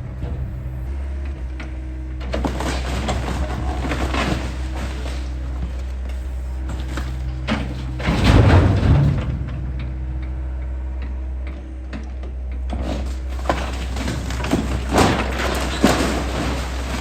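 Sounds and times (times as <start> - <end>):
diesel engine running: 0.0 - 17.0
wood cracking and snapping: 13.0 - 17.0.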